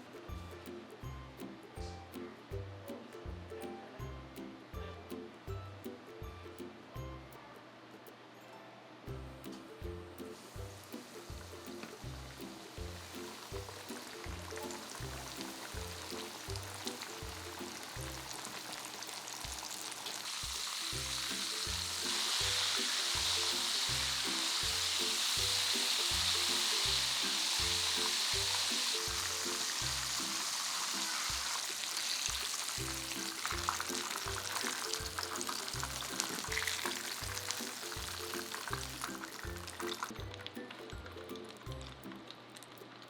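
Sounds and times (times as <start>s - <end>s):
background music with steady beat: 0.0s - 8.3s, 9.0s - 43.0s
chicken frying in hot oil: 10.4s - 42.7s.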